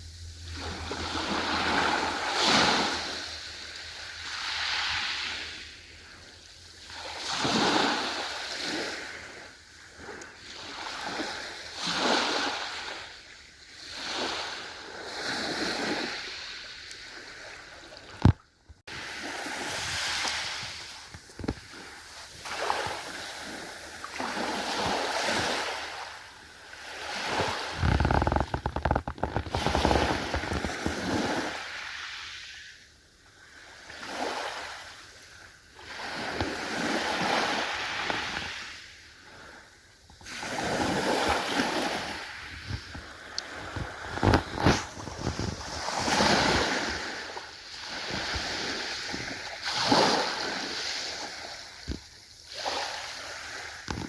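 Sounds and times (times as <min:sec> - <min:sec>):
ocean waves washing in: 0:00.0 - 0:18.2, 0:18.9 - 0:39.7.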